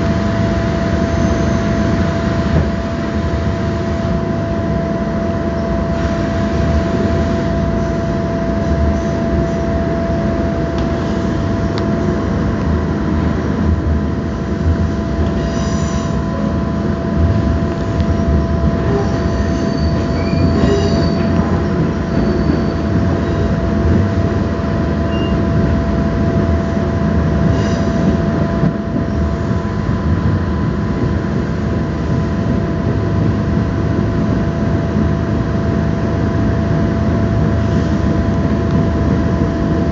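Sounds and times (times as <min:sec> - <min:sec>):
constant whine: 0:00.0 - 0:39.9
train wheels rumbling on track: 0:00.0 - 0:39.9
wheel squeals: 0:18.9 - 0:23.5, 0:25.1 - 0:25.4.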